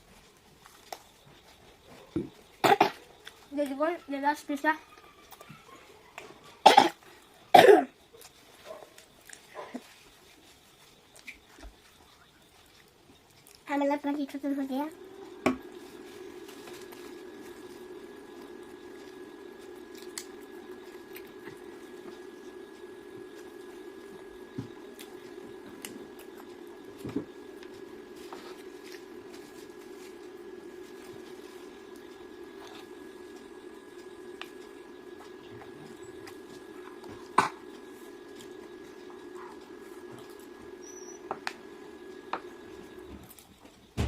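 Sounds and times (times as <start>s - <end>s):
faint high whine: 0.0s - 44.0s
person coughing: 6.7s - 7.9s
eating and food-handling noises: 8.1s - 13.7s, 14.9s - 43.8s
low hum: 14.8s - 43.3s.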